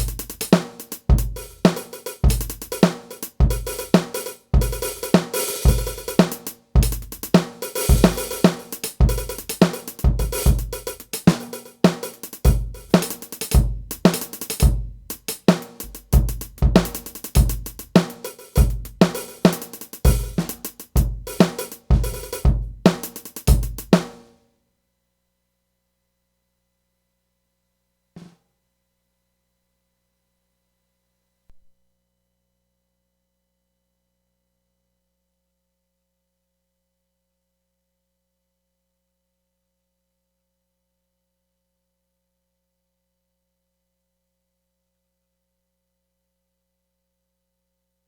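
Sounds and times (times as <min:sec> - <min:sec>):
drum kit playing a groove: 0:00.0 - 0:24.3.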